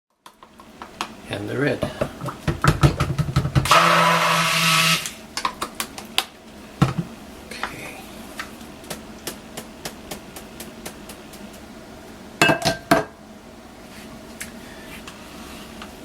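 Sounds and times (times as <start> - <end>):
stick blender whirring: 2.2 - 5.2.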